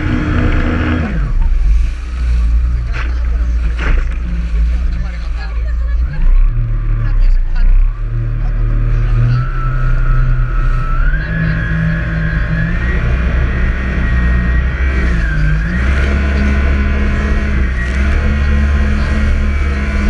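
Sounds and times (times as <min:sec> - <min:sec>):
jet ski engine running hard: 0:00.0 - 0:20.0
high whine: 0:06.9 - 0:20.0.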